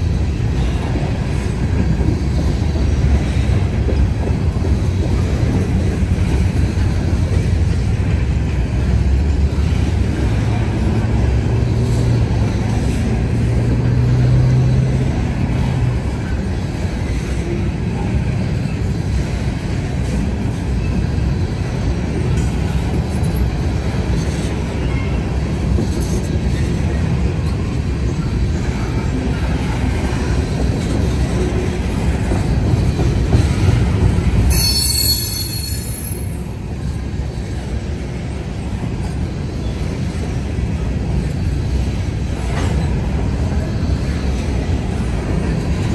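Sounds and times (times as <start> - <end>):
freight train rumbling past: 0.0 - 45.9
high-pitched metallic squeal: 34.5 - 36.5.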